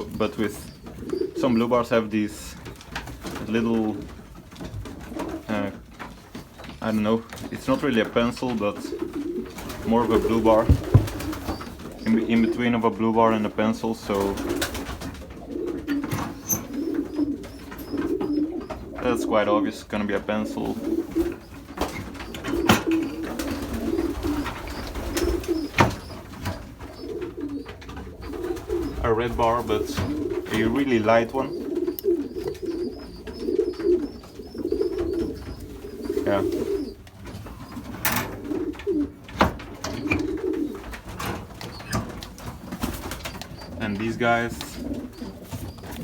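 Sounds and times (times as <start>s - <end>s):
pigeons cooing: 0.0s - 46.0s
sharp knocks or claps: 10.5s - 11.6s.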